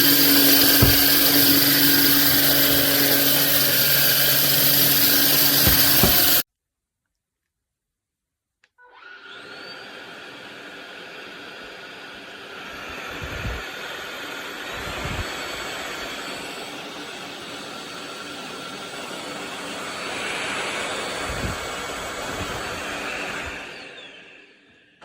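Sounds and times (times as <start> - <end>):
brush head knocking: 0.0 - 4.0, 4.7 - 6.4
vacuum cleaner running: 0.0 - 6.4, 8.8 - 25.0.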